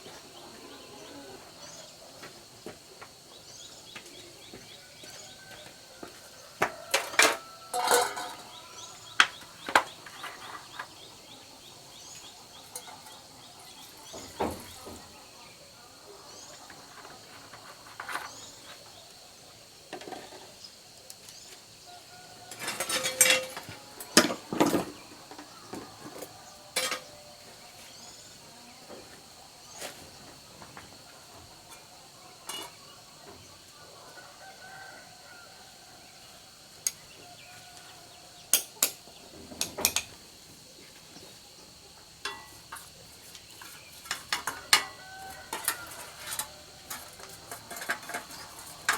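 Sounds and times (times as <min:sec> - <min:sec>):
insects droning: 0:00.0 - 0:48.9
metal tools clinking: 0:07.0 - 0:08.7, 0:22.5 - 0:24.3, 0:26.8 - 0:27.1, 0:42.2 - 0:42.9.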